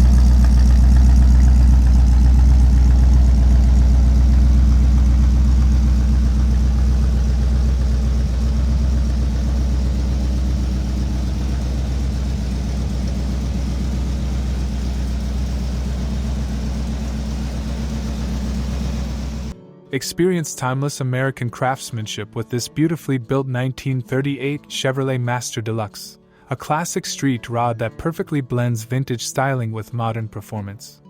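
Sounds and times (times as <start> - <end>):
car engine idling: 0.0 - 19.6.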